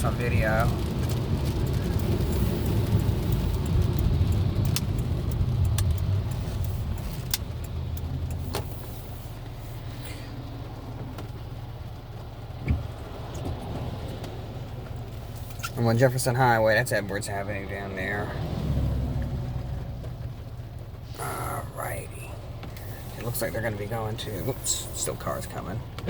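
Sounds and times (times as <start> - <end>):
car engine and road drone: 0.0 - 26.0
short thump: 12.6 - 13.9.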